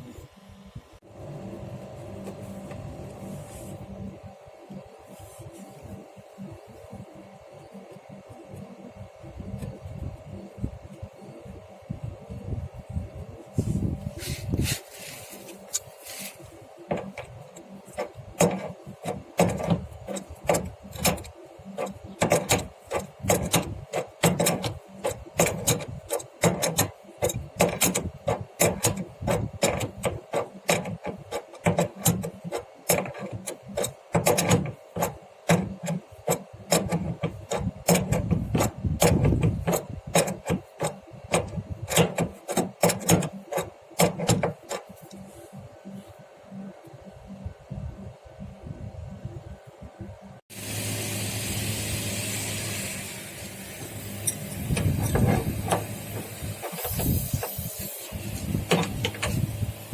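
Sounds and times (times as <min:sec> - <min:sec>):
scraping and clicking on copper pipe: 0:14.2 - 0:45.2.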